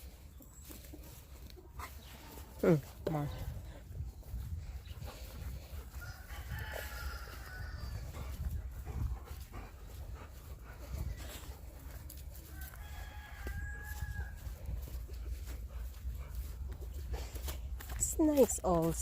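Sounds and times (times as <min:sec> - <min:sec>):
rooster crowing: 0:05.9 - 0:08.1, 0:12.4 - 0:14.6.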